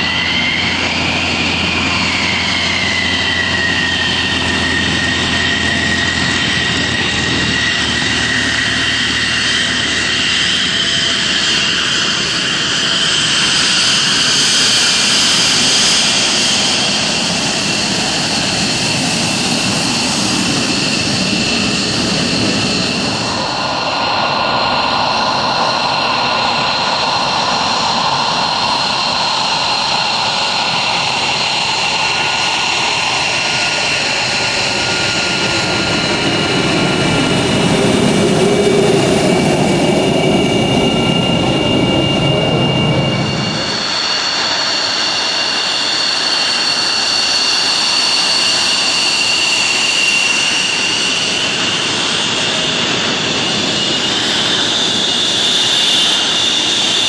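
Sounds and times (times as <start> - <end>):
heavy low rumble: 0.0 - 10.4, 34.8 - 44.2
jet engines whining: 0.0 - 57.0.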